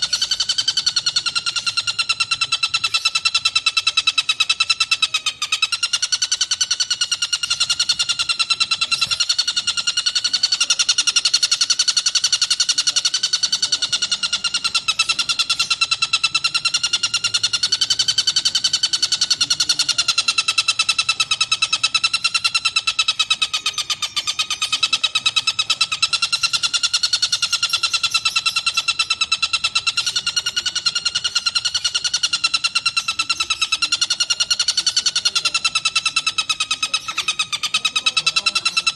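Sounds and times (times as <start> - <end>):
kingfisher rattling trill: 0.0 - 38.9.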